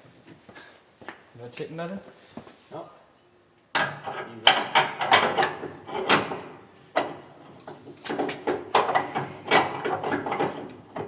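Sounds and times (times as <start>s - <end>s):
metal clunks and rattles: 3.7s - 11.0s.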